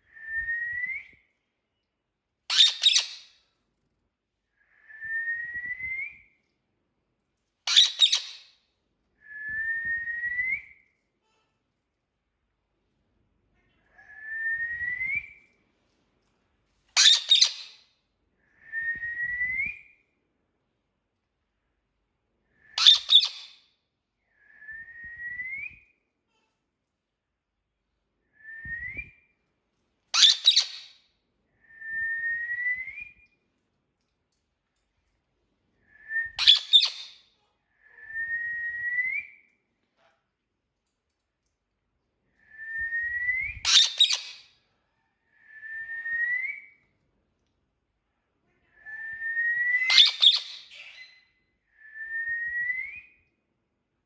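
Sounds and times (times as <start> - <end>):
parrot whistling: 22.8 - 23.5, 30.2 - 30.9, 36.2 - 37.2, 43.0 - 44.4, 49.0 - 51.2.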